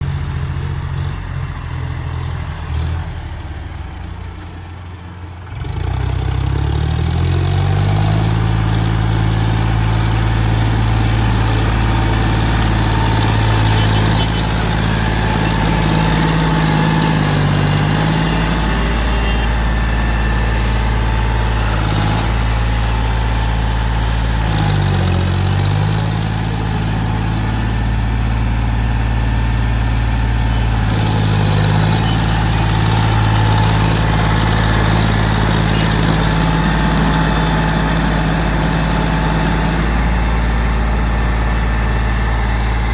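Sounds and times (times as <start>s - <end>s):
tractor engine revving: 0.0s - 42.9s.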